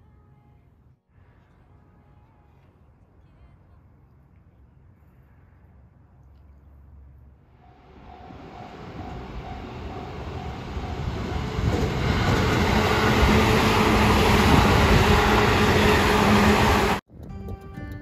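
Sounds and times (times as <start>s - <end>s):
electric train passing: 7.6s - 17.0s.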